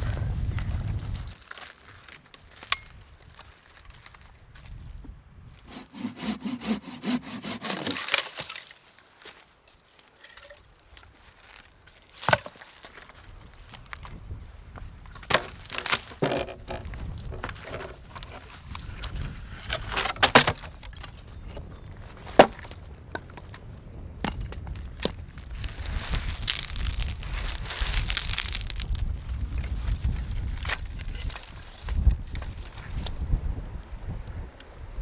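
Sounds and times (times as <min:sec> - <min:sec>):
wind rumbling on microphone: 0:00.0 - 0:01.4, 0:02.5 - 0:05.8, 0:13.2 - 0:35.0
dry sticks snapping: 0:02.3 - 0:03.0, 0:07.0 - 0:09.4, 0:15.2 - 0:23.3, 0:24.3 - 0:29.0.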